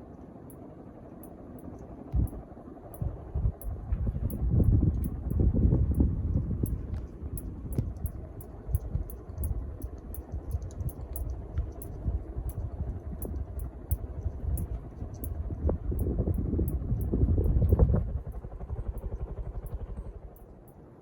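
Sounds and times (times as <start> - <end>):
faint high ticks: 0.2 - 20.8
fan air buffeting microphone: 1.3 - 20.7.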